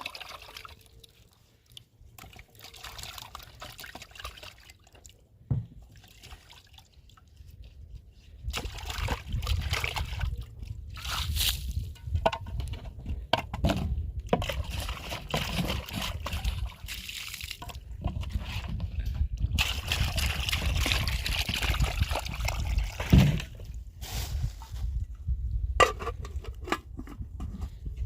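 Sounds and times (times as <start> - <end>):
water sloshing and trickling: 0.0 - 13.0, 14.2 - 25.1.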